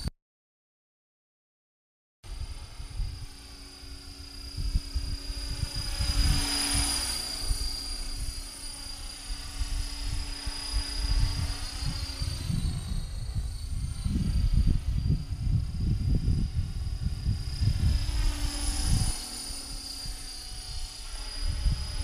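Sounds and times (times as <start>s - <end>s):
rc helicopter high whine: 2.3s - 22.0s
wind buffeting microphone: 2.3s - 22.0s.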